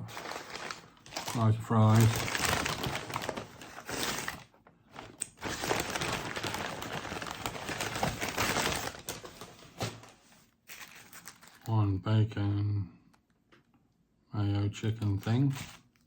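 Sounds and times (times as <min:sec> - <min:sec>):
paper bag rustling: 0:00.0 - 0:11.7, 0:15.4 - 0:16.0.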